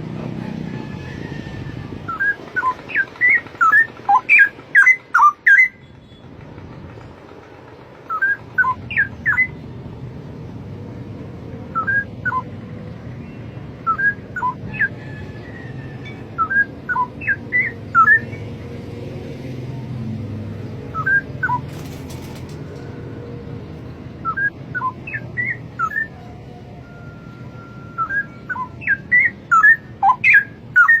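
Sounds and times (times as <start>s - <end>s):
bird singing whistled phrases: 11.8s - 12.5s, 26.8s - 31.0s.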